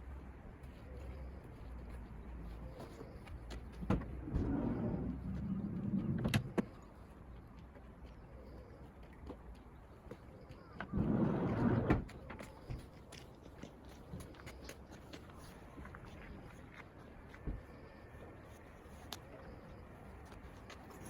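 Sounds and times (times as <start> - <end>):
sliding van door rolling: 4.2 - 6.6, 10.9 - 12.1.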